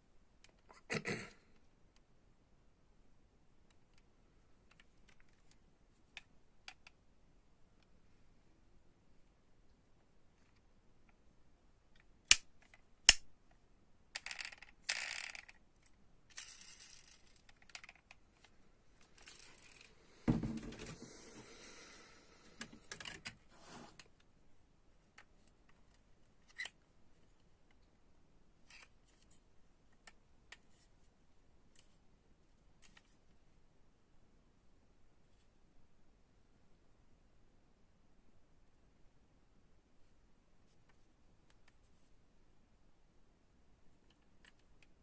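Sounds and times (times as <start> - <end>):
dull thump: 20.2 - 21.0.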